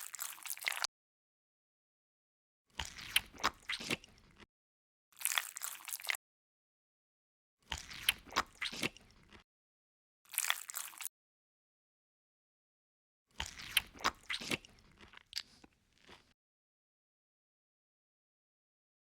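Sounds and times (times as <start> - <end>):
crunchy bites and chewing: 0.0 - 0.9, 2.8 - 4.5, 5.2 - 6.2, 7.6 - 9.4, 10.3 - 11.1, 13.3 - 16.4.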